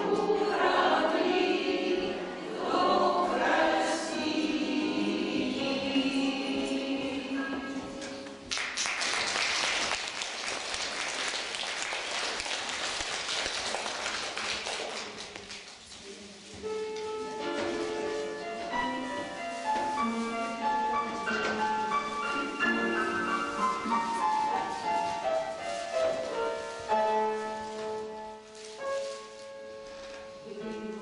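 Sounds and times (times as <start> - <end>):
choir singing chord: 0.0 - 8.1
audience applauding: 8.5 - 15.8.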